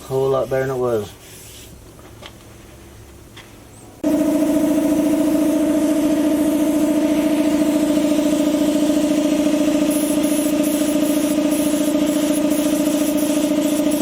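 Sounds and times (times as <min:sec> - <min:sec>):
motor humming: 0:04.0 - 0:14.0.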